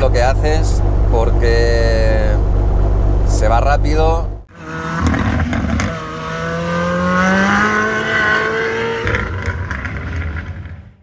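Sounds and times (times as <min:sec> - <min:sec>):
rally car engine revving: 0:04.5 - 0:11.0.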